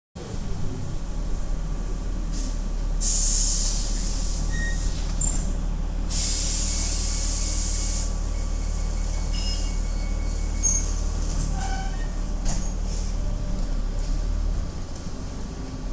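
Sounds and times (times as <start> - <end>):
bus engine rumbling: 0.2 - 15.9
compressed air hiss: 3.0 - 4.4, 6.1 - 8.2
faint short squeaks: 4.5 - 5.5, 9.0 - 12.8.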